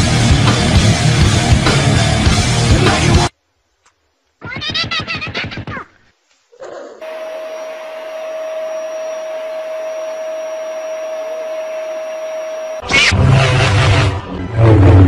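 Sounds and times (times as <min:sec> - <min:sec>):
small electric motor whirring: 0:07.0 - 0:13.0.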